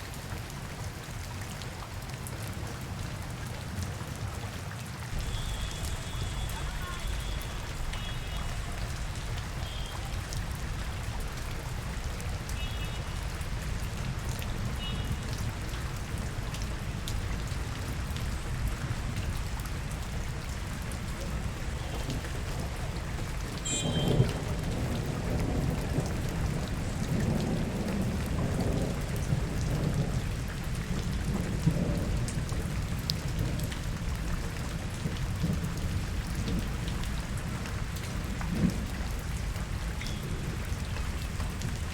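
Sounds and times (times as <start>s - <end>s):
rain falling on street: 0.0s - 41.9s.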